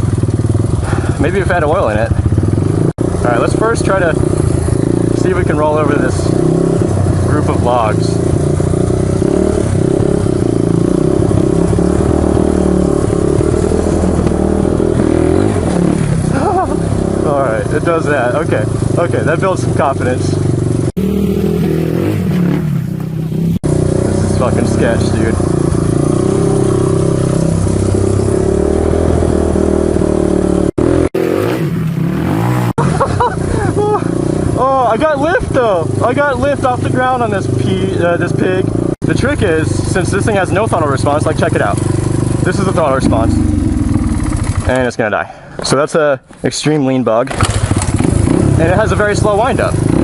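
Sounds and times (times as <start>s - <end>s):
motorcycle engine running: 0.0s - 45.6s, 47.3s - 50.0s.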